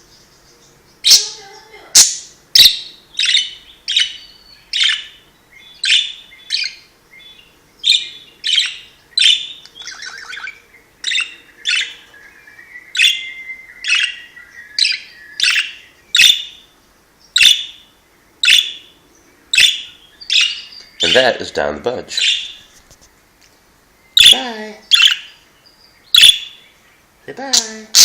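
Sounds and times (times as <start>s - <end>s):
budgerigar chatter: 1.0s - 4.2s, 19.5s - 22.7s, 27.3s - 28.0s
budgerigar chirping: 1.0s - 22.7s, 24.1s - 26.8s, 27.5s - 28.0s.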